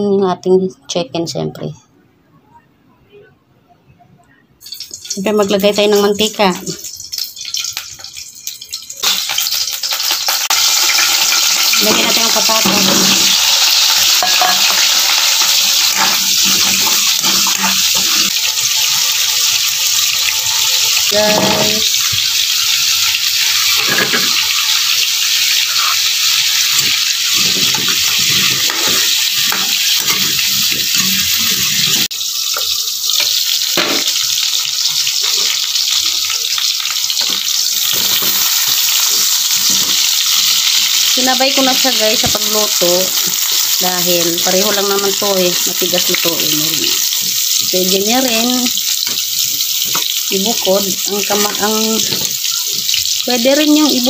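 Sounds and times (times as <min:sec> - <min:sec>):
vegetables sizzling in hot oil: 0:04.6 - 0:54.0
metal spatula scraping and clinking: 0:14.1 - 0:19.0, 0:26.8 - 0:32.1.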